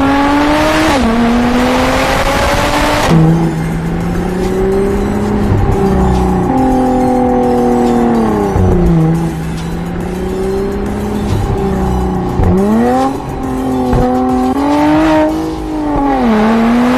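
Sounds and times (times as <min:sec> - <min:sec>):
car engine revving: 0:00.0 - 0:16.9.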